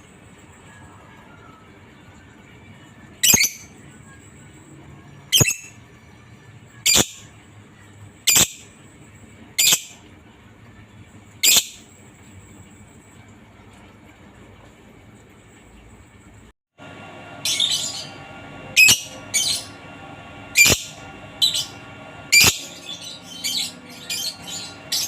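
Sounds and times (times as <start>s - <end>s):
lovebird shrill calls: 18.8s - 19.7s, 20.6s - 25.0s.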